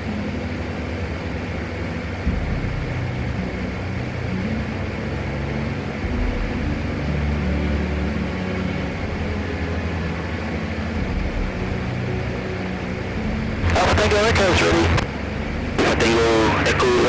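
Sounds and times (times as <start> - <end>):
turboprop engine drone: 0.0 - 17.0.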